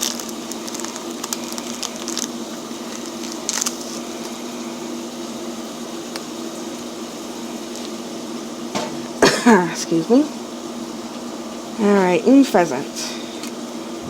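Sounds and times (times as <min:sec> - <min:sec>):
foil wrapper crinkling: 0:00.0 - 0:06.9, 0:07.5 - 0:08.0
steady low hum: 0:00.0 - 0:14.0.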